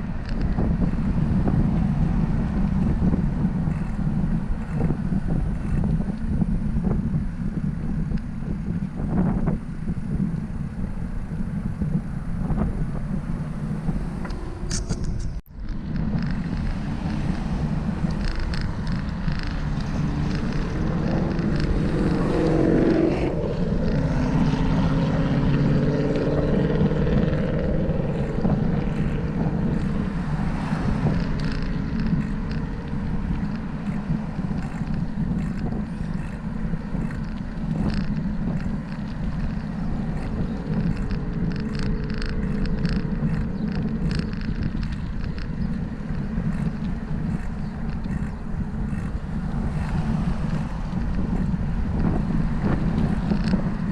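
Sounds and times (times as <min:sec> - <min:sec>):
street traffic passing: 0:00.0 - 0:53.9
wind buffeting microphone: 0:00.0 - 0:53.9
vehicle engine passing by: 0:13.2 - 0:45.4.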